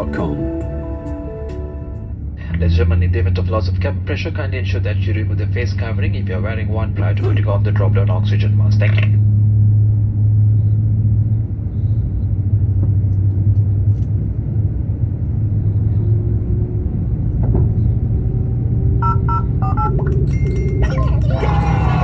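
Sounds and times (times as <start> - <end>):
low rumble inside aircraft cabin: 0.0 - 22.0
short electronic tones: 19.0 - 21.2.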